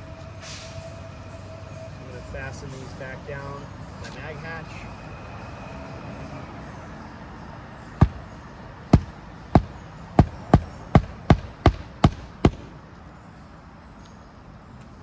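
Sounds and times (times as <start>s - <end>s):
hatchet hammering nails: 8.0s - 8.2s, 9.0s - 12.8s.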